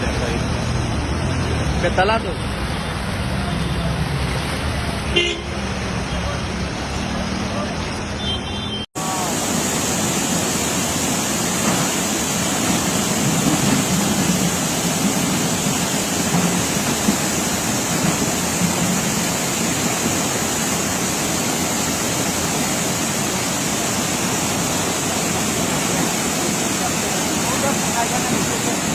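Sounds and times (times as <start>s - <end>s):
water rushing: 0.0s - 8.3s, 9.0s - 28.9s.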